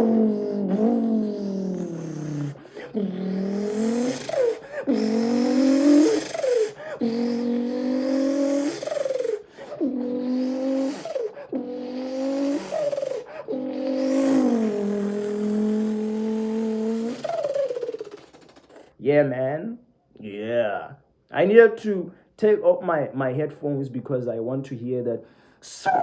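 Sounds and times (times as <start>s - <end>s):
man imitating engine with mouth: 0.0s - 19.0s, 25.6s - 26.0s.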